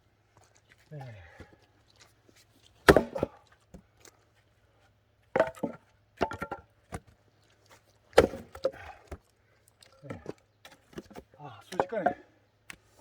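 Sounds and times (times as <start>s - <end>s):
axe chopping firewood: 2.8s - 3.4s, 5.4s - 7.0s, 8.1s - 9.2s, 10.9s - 12.8s.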